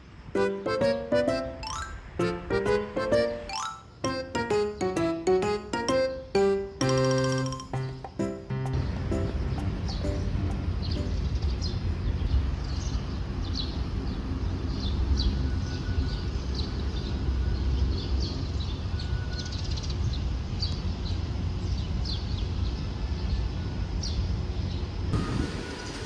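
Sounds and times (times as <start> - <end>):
birds chirping: 0.0 - 13.9
low rumble: 8.7 - 11.9.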